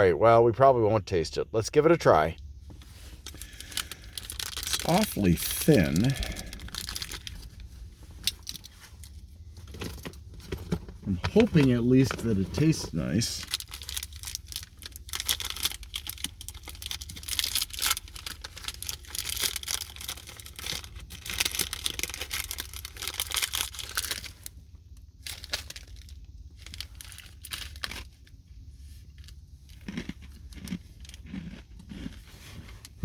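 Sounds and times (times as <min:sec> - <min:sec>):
wrapper crinkling and tearing: 0:03.2 - 0:07.7, 0:11.3 - 0:24.5, 0:25.2 - 0:28.2.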